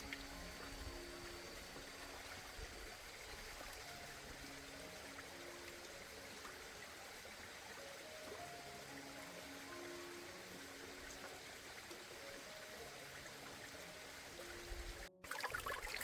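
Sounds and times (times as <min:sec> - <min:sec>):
flowing water: 0:00.0 - 0:16.0
soft background music: 0:00.0 - 0:16.0.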